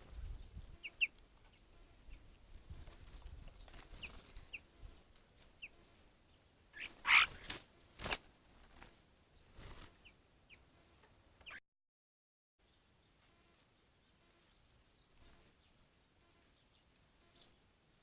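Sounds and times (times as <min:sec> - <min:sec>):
songbirds chirping: 0:00.0 - 0:11.6, 0:12.6 - 0:18.0
harsh bird call: 0:06.8 - 0:07.4.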